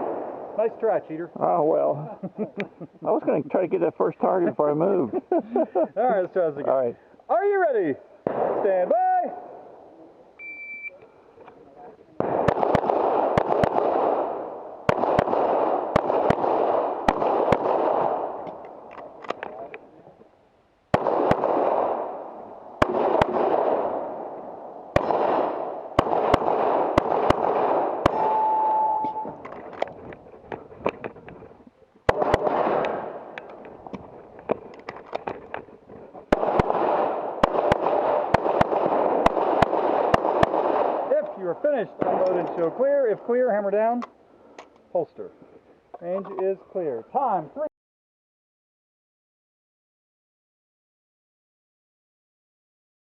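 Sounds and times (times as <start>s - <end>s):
rapid handgun shots with echo: 0.0s - 1.0s, 8.2s - 9.6s, 12.2s - 19.5s, 20.9s - 29.8s, 32.1s - 33.7s, 36.3s - 42.8s.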